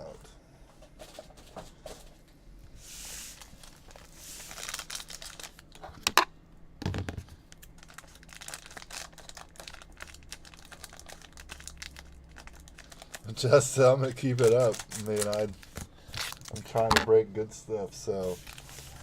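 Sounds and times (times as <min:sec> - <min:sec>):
wrappers tearing and crinkling: 0:03.3 - 0:05.8, 0:07.5 - 0:16.9, 0:18.2 - 0:19.0
cards clicking and rustling: 0:14.2 - 0:17.1.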